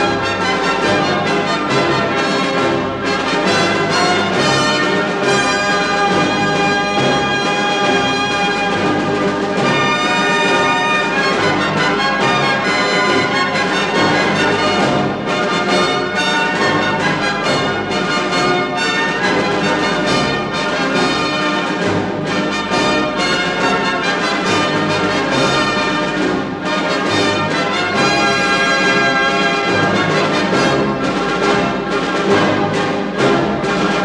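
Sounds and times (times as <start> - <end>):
orchestral music with brass: 0.0 - 34.0.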